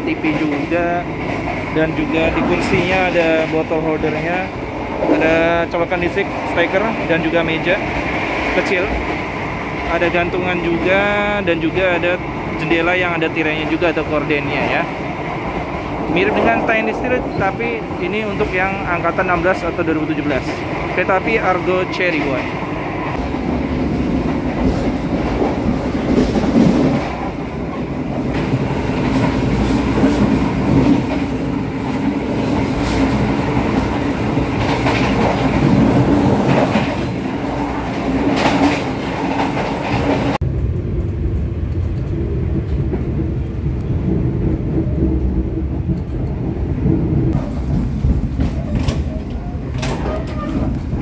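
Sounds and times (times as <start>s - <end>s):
train rumble and hum: 0.0s - 51.0s
wheels clicking over rail joints: 23.3s - 43.1s, 45.9s - 51.0s.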